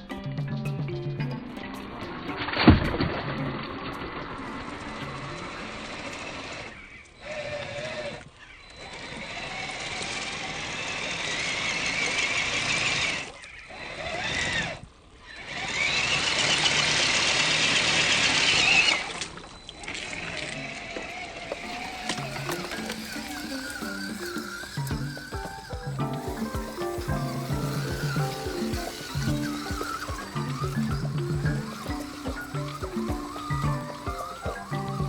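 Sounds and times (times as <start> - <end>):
electric motor whining: 4.4 - 19.2, 19.9 - 35.0.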